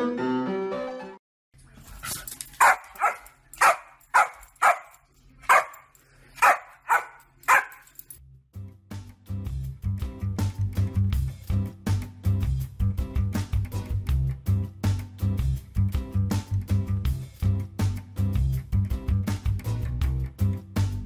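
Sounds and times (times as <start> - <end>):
piano music: 0.0 - 1.2
dog barking: 2.6 - 7.9
music with a beat: 9.0 - 21.0.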